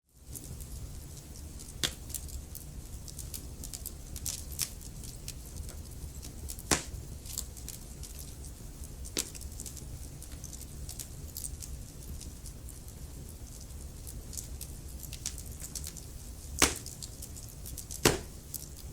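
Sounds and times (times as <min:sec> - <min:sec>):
wood fire crackling: 0:00.1 - 0:18.9
low rumble of flames: 0:00.2 - 0:18.9
fire popping sharply: 0:16.6 - 0:17.0, 0:18.0 - 0:18.5.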